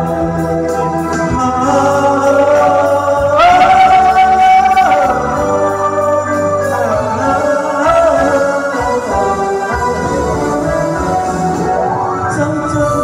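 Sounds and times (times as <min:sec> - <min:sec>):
instrumental accompaniment: 0:00.0 - 0:13.0
person singing a long note: 0:01.2 - 0:10.9.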